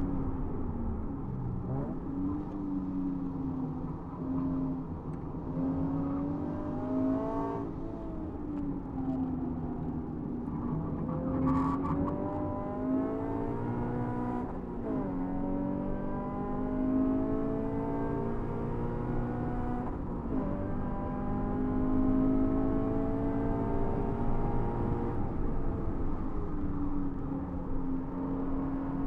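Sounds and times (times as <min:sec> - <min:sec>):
car engine accelerating hard: 0:10.5 - 0:26.3.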